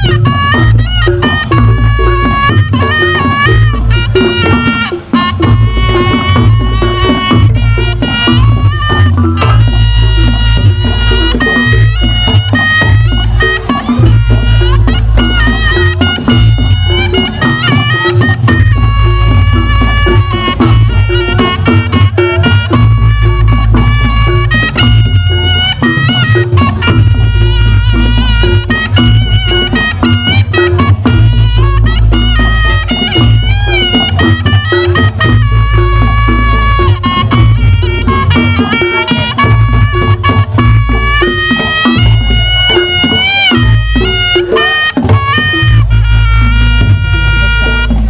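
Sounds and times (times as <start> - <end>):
heavy low drum beats: 0.0 - 48.0
reedy double-reed trumpet melody: 0.0 - 48.0.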